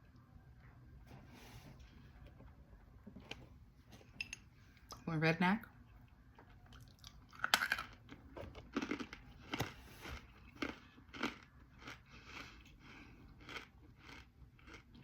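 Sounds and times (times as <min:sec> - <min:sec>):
chewing brittle clay: 0:05.9 - 0:15.0.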